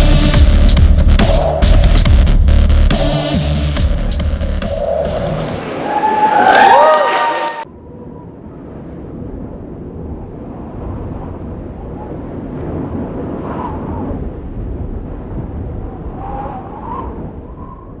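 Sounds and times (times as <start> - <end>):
low rumble of crowded hall: 5.4 - 8.7.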